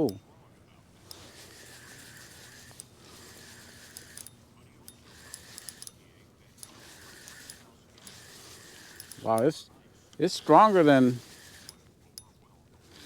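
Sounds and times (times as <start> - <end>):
light reel clicks: 0.0 - 0.2, 1.0 - 13.0
fishing reel whirring: 1.0 - 9.6, 10.2 - 12.2, 12.8 - 13.0.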